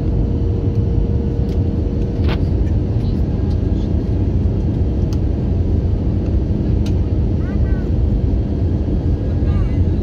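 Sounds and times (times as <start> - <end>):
aircraft cabin engine rumble: 0.0 - 10.0
constant hum: 0.0 - 10.0.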